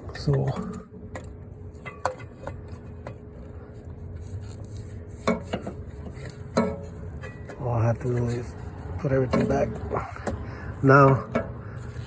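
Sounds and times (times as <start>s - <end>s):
steady low hum: 0.0s - 12.0s
hand tools clicking and tapping: 9.2s - 10.4s.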